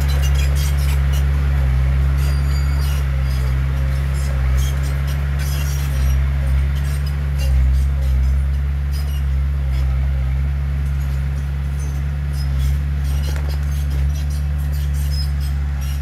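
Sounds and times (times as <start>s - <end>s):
diesel machinery engine drone: 0.0s - 16.0s.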